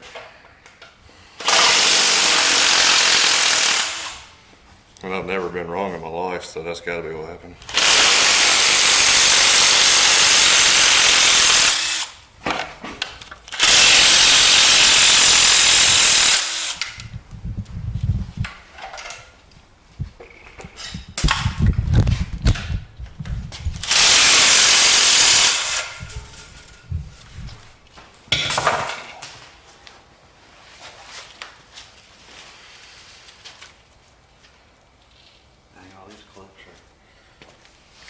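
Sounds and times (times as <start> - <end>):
power tool running: 1.4 - 4.3, 7.7 - 12.2, 13.5 - 17.1, 23.8 - 26.7
knocks and clunks of parts: 12.4 - 13.7, 18.4 - 24.0, 28.3 - 29.6.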